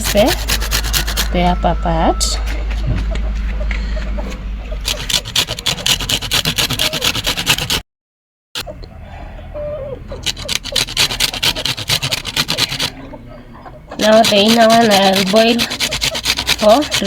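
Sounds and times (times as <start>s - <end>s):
lemon rind grated on hand grater: 0.0s - 1.3s, 4.9s - 7.8s, 10.2s - 13.0s, 14.0s - 17.0s.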